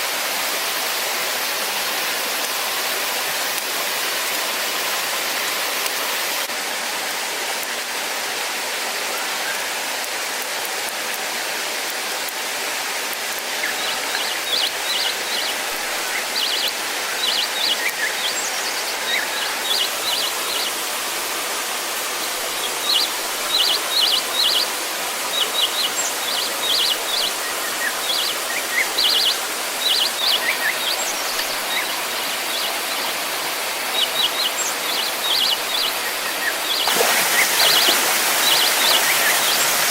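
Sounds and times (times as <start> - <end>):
rushing water: 0.0 - 39.9
small bird chirping: 22.6 - 24.7, 25.3 - 33.1, 33.9 - 39.7.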